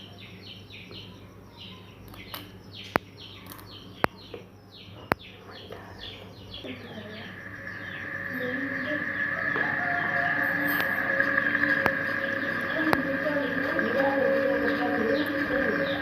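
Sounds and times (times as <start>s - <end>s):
small birds chirping: 0.0s - 16.0s
steady low hum: 0.0s - 16.0s
sharp clicks: 2.1s - 5.8s.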